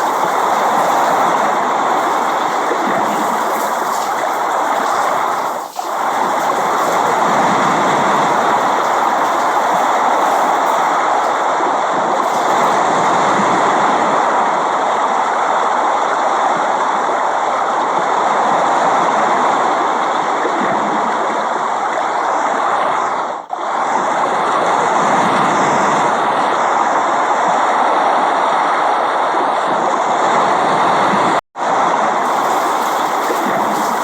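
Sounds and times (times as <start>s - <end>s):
steady rain: 0.0s - 18.3s, 31.6s - 34.0s.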